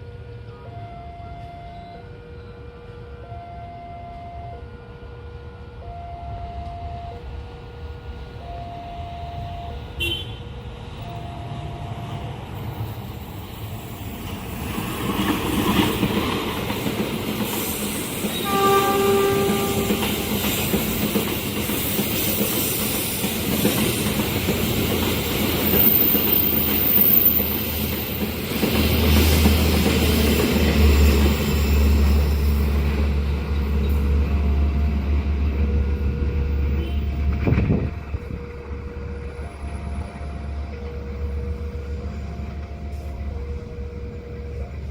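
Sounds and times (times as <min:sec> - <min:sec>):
train horn: 0:00.0 - 0:07.8, 0:08.4 - 0:12.0, 0:18.2 - 0:21.0, 0:30.9 - 0:44.9
train passing at speed: 0:00.0 - 0:44.9
level crossing alarm: 0:00.5 - 0:10.2, 0:11.0 - 0:12.4.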